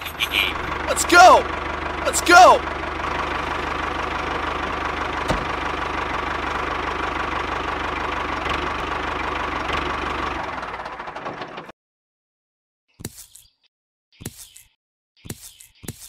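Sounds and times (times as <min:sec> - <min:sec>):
tractor engine knocking: 0:00.0 - 0:11.7.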